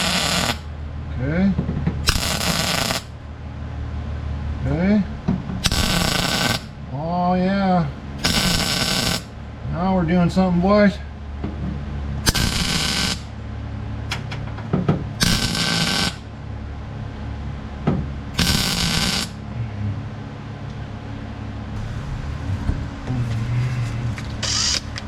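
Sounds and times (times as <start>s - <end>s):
welder crackling bursts: 0.0s - 0.7s, 2.0s - 3.2s, 5.6s - 6.8s, 8.2s - 9.4s, 12.2s - 13.3s, 15.2s - 16.3s, 18.4s - 19.4s, 21.8s - 25.0s.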